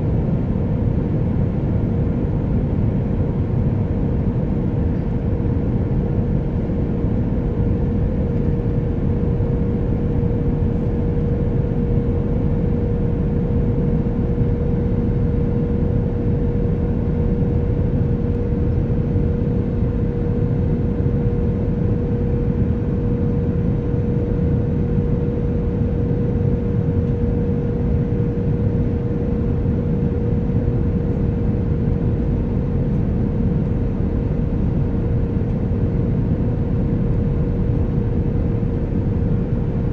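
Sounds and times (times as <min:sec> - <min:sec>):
constant hum: 0:00.0 - 0:39.9.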